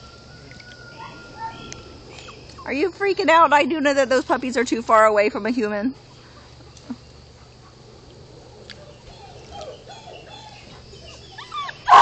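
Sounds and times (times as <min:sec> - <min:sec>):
puppies whining: 0:00.0 - 0:02.7, 0:08.5 - 0:12.0.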